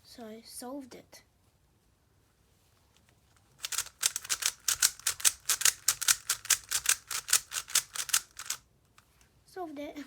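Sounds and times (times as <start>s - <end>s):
puzzle cube layers clicking: 3.6s - 8.6s.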